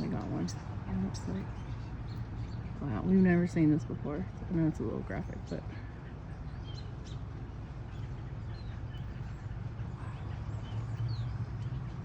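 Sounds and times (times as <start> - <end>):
starlings chirping and whistling: 5.4 - 12.0.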